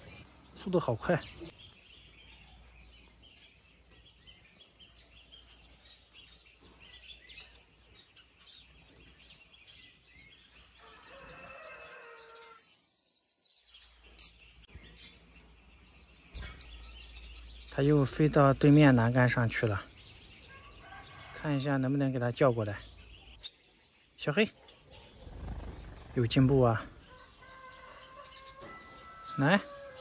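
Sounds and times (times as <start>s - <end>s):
small birds chirping faintly: 0.0s - 30.0s
loud sharp high chirp: 14.2s - 14.4s, 16.3s - 17.0s.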